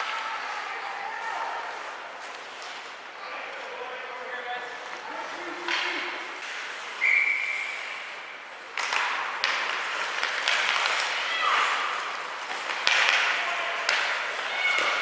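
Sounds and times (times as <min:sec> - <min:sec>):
spectators clapping and cheering: 0:10.3 - 0:15.0.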